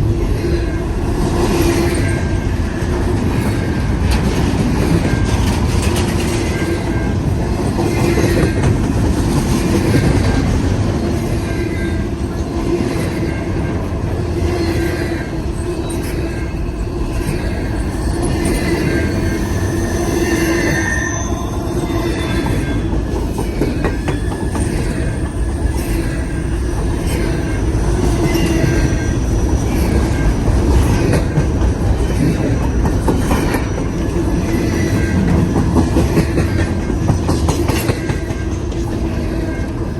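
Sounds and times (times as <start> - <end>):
freight train cars rolling: 0.0 - 39.9
wheels clacking over rail joints: 1.6 - 11.6, 29.6 - 39.8
wheels squealing: 14.4 - 38.1.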